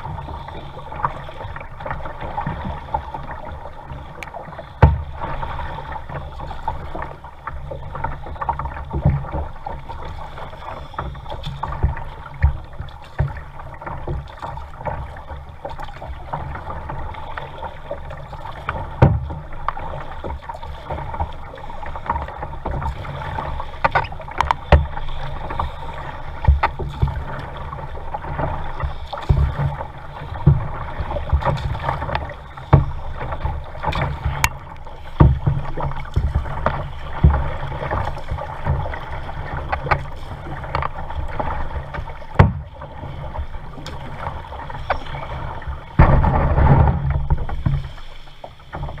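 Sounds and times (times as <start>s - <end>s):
water sloshing and splashing: 0.0s - 49.0s
knocks against boat: 4.2s - 5.4s, 11.0s - 15.2s, 18.6s - 21.4s, 22.0s - 25.4s, 26.3s - 42.8s, 43.7s - 47.9s.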